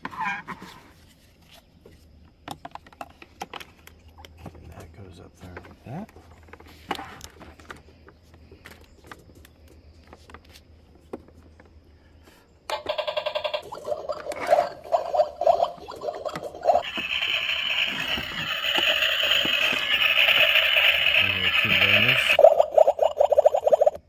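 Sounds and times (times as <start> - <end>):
buzzy electronic toy sound: 12.7 - 24.0.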